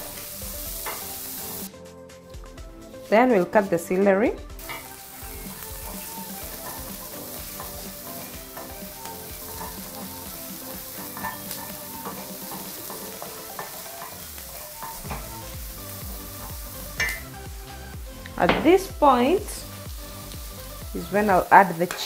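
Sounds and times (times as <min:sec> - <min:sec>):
onions sizzling in a pan: 0:00.0 - 0:01.7, 0:02.9 - 0:22.0
wooden spoon scraping a pan: 0:05.6 - 0:15.5.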